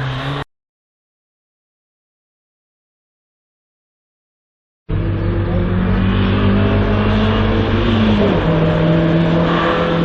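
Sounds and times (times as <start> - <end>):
race car engine accelerating: 0.0 - 0.4, 4.9 - 10.0.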